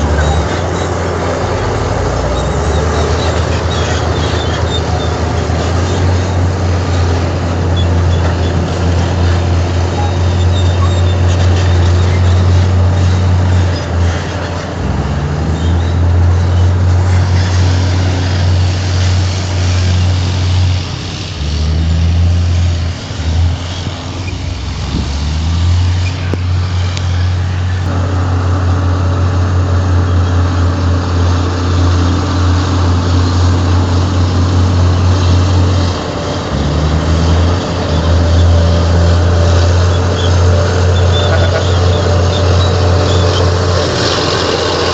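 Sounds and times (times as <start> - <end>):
bulldozer diesel engine working: 0.0 - 44.9.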